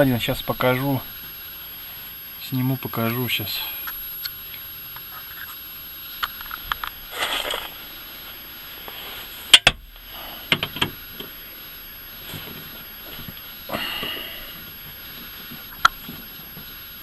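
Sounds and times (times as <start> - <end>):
metal clinks and knocks: 9.5 - 9.8.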